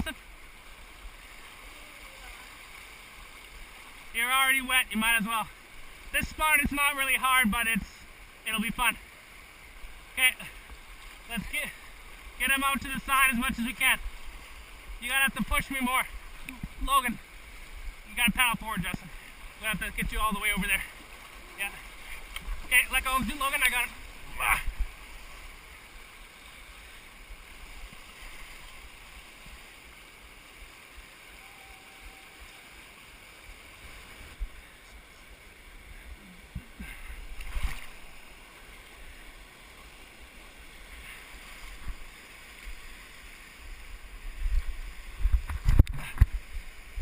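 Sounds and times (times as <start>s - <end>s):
creek water rushing: 0.0s - 47.0s
brief bumps and splashes: 37.4s - 38.0s.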